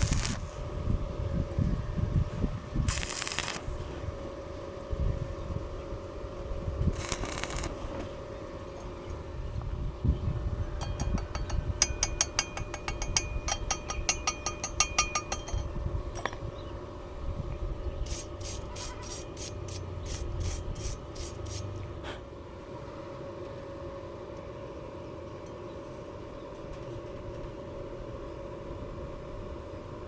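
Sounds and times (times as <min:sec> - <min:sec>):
sharp mechanical clicks: 0:00.0 - 0:00.4, 0:02.9 - 0:03.6
steady hum: 0:00.0 - 0:30.0.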